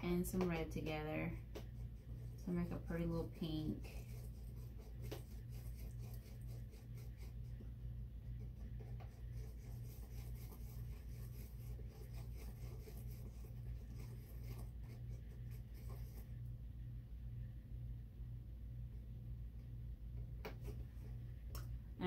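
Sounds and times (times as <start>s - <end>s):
low steady hum: 0.0s - 22.0s
paintbrush scratching on palette: 0.1s - 16.4s.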